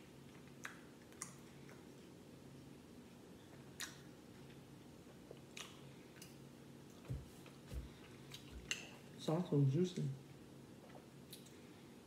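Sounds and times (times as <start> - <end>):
faint chewing: 0.2 - 2.2, 3.0 - 9.0.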